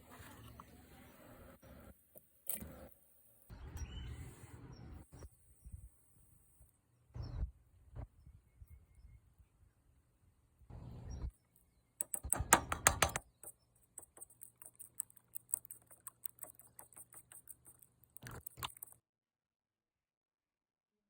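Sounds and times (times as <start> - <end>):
small clicks and rattles: 12.0 - 19.0.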